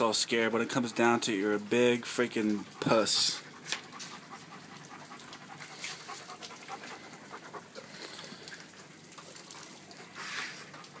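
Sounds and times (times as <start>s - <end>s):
dog panting rapidly: 0.0s - 8.0s.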